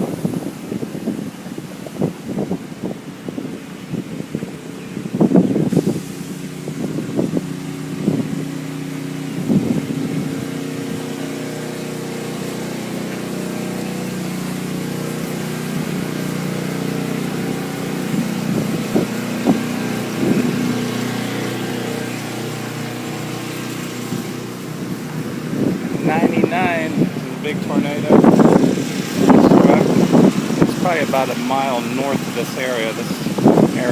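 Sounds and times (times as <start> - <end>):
car engine humming: 0.0 - 33.9.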